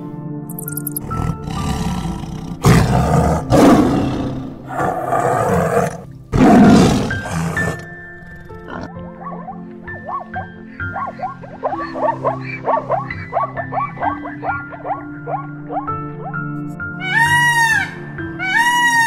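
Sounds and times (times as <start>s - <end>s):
background music: 0.0s - 19.0s
tiger roaring and snarling: 1.0s - 8.9s.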